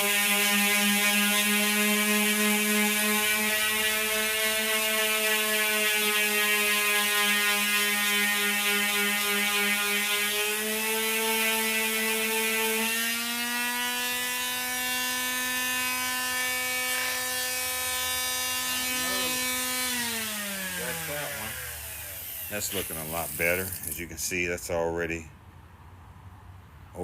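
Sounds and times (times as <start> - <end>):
power tool motor whine: 0.0 - 24.1.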